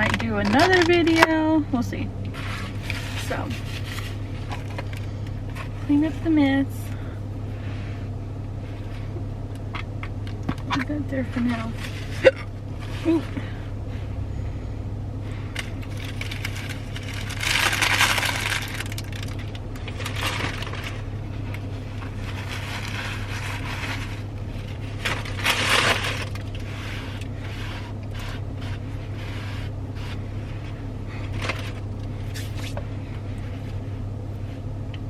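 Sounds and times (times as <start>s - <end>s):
steady low hum: 0.0s - 35.0s
packaging crumpling and rustling: 15.6s - 33.9s.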